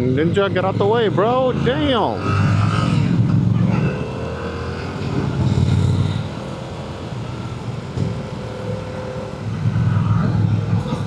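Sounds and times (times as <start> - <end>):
wind noise: 2.2 - 11.0.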